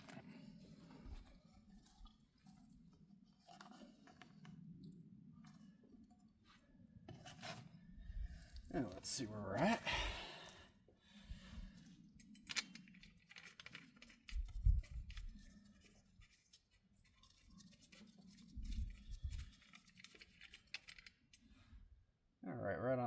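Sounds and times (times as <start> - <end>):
small clicks and rustles: 0.0 - 7.7, 11.8 - 21.5.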